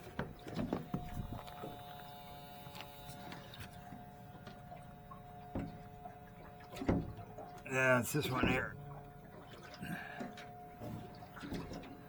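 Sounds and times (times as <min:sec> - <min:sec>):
electric pump humming: 0:00.9 - 0:11.4.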